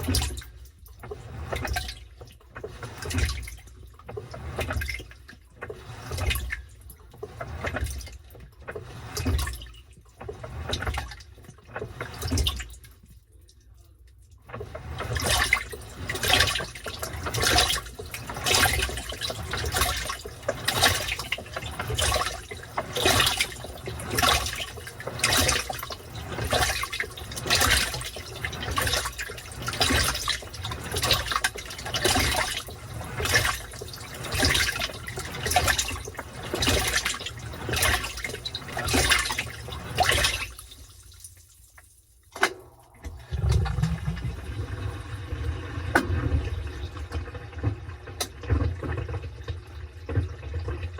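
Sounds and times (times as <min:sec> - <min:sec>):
washing machine sloshing water: 0:00.0 - 0:50.9
low motor hum: 0:42.6 - 0:48.8.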